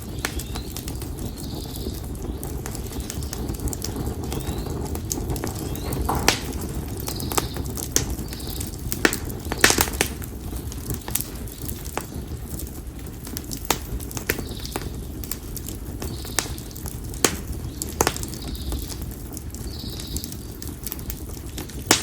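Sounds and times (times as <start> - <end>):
campfire crackling: 0.0 - 22.0.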